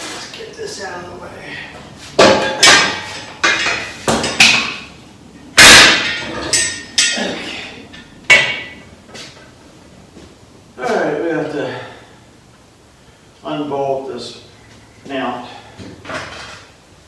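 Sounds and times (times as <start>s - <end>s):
hammer striking metal: 2.2s - 4.8s, 5.6s - 7.2s.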